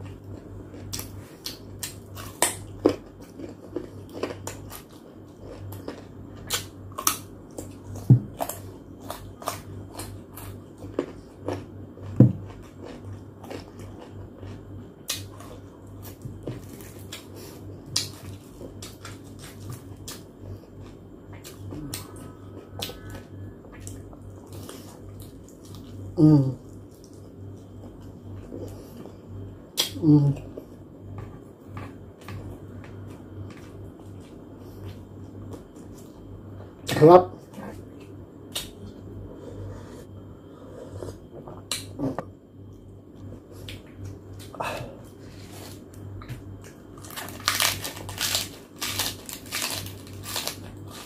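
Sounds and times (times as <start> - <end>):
steady low hum: 0.0 - 51.0
person humming mmm: 21.6 - 24.0, 26.1 - 26.8, 29.8 - 30.6, 41.7 - 42.3.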